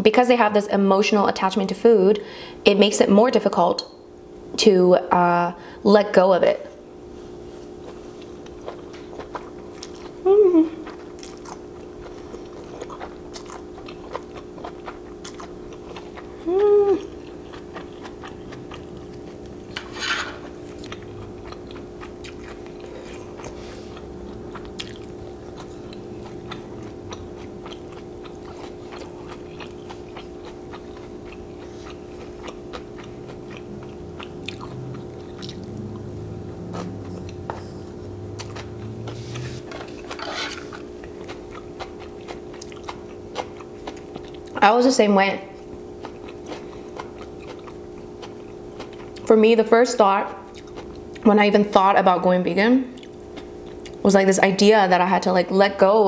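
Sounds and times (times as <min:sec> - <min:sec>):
background hum: 0:00.0 - 0:56.0
person chewing noodles: 0:07.3 - 0:44.6, 0:45.5 - 0:49.3, 0:50.3 - 0:51.2, 0:53.0 - 0:54.0
slurping: 0:31.6 - 0:41.3.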